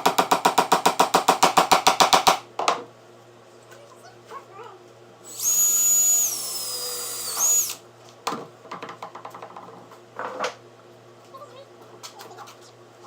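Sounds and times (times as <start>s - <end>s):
power drill whining: 5.3s - 7.8s.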